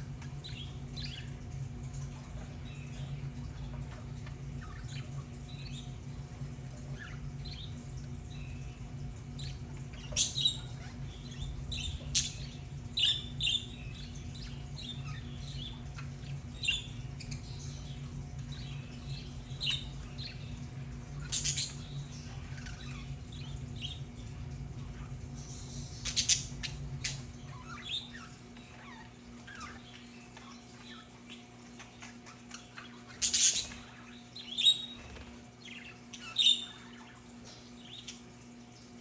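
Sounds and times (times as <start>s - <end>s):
budgerigars chirping: 6.6s - 24.0s, 24.8s - 38.3s.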